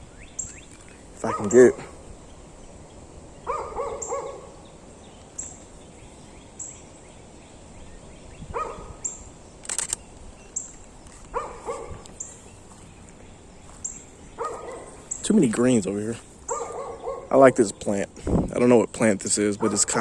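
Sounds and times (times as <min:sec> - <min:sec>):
dog barking: 0:01.2 - 0:02.0, 0:03.5 - 0:04.6, 0:08.5 - 0:09.0, 0:11.3 - 0:12.0, 0:14.4 - 0:15.0, 0:16.5 - 0:17.4, 0:19.6 - 0:20.0
sharp click: 0:09.6 - 0:10.8.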